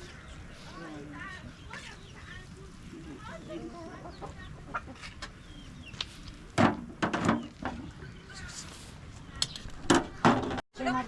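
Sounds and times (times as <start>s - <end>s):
chickens clucking: 0.0s - 8.5s.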